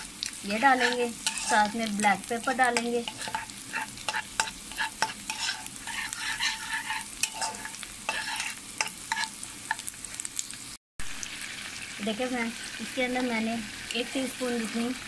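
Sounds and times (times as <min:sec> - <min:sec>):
onion sizzling in oil: 0:00.0 - 0:15.0
wooden spoon scraping pan: 0:00.6 - 0:09.9.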